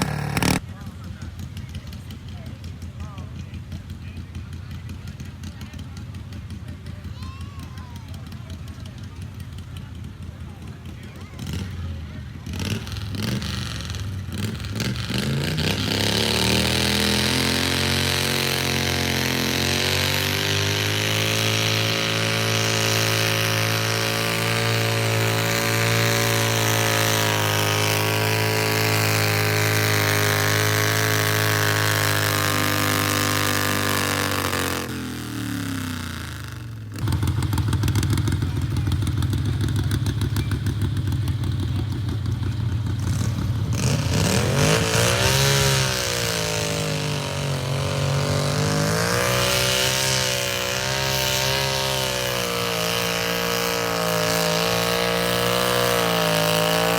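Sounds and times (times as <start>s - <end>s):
tractor engine revving: 0.0s - 7.1s, 8.2s - 56.9s
rough low engine sound: 0.0s - 56.9s.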